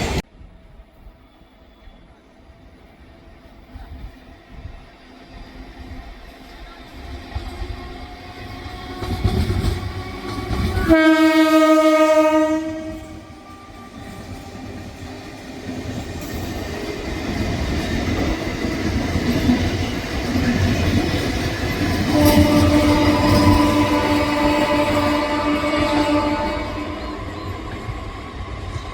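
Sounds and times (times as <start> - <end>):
approaching train rumble: 0.0 - 28.9
train horn blast: 9.0 - 14.1, 22.0 - 27.9.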